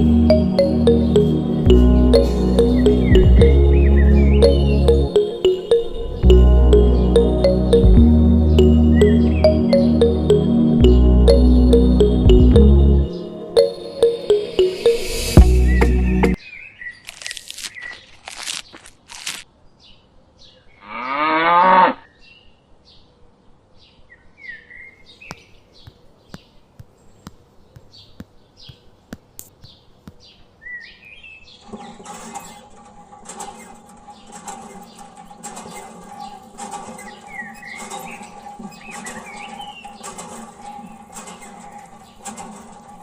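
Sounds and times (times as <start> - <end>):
layered hum with repeating beat: 0.0 - 16.4
cow mooing: 20.8 - 22.0.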